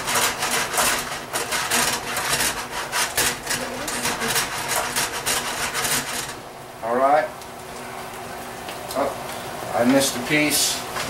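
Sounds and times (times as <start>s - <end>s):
spatula scraping a wok: 0.0s - 6.4s.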